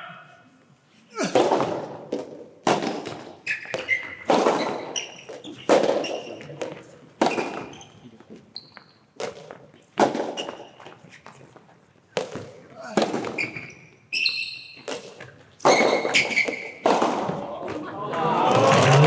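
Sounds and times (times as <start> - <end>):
tennis ball struck by rackets: 1.4 - 7.8, 9.2 - 10.7, 12.2 - 13.5, 14.9 - 17.8
shoes squeaking on court: 3.0 - 17.0.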